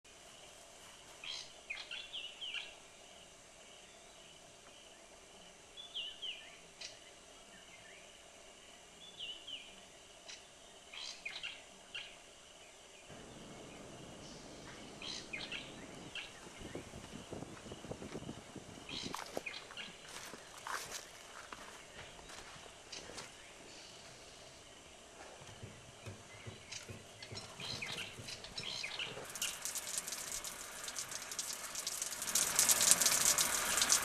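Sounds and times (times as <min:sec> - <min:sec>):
low noise: 0:00.1 - 0:34.0
birds chirping: 0:09.0 - 0:34.0.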